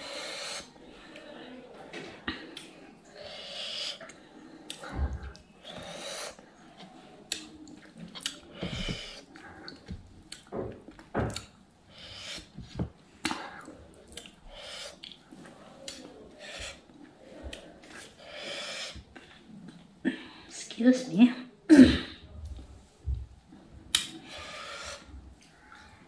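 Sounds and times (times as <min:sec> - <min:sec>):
mouth clicks and smacks: 0:02.3 - 0:02.8, 0:03.7 - 0:19.9, 0:23.9 - 0:25.6
person chewing food: 0:04.0 - 0:19.9.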